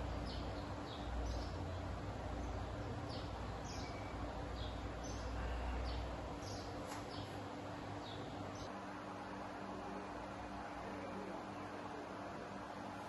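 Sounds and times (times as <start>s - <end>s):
small birds chirping: 0.0s - 8.7s.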